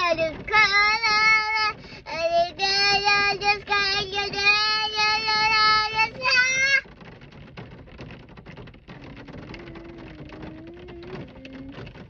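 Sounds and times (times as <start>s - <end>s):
young girl singing: 0.0s - 6.8s
steady rain falling: 0.0s - 12.0s.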